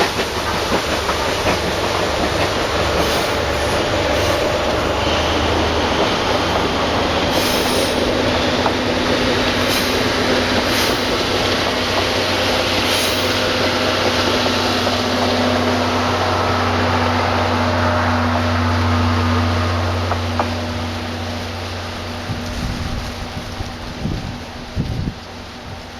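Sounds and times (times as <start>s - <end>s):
steam train rumbling on rails: 0.0s - 25.9s.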